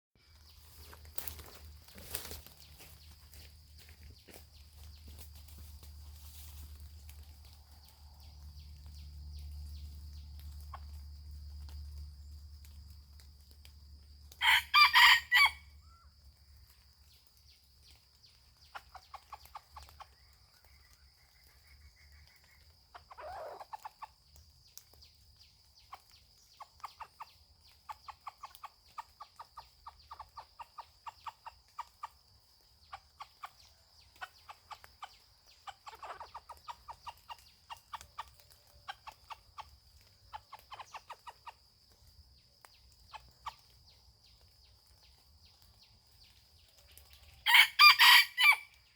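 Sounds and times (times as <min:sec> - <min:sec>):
rooster crowing: 0:14.4 - 0:15.7, 0:47.4 - 0:48.8
soft rooster call: 0:14.4 - 0:15.8, 0:47.4 - 0:48.8
rapid clucks: 0:18.6 - 0:20.2, 0:32.8 - 0:41.6.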